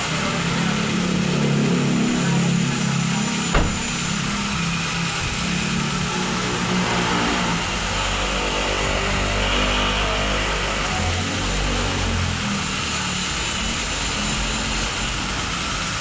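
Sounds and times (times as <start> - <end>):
car engine idling: 0.0 - 8.1
sharp knock: 3.5 - 4.6.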